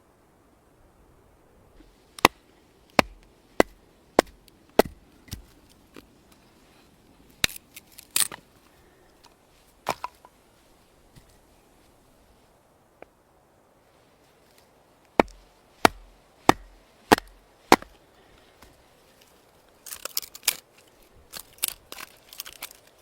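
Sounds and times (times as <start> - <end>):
axe chopping wood: 2.2 - 5.6, 9.8 - 10.3, 15.2 - 18.0.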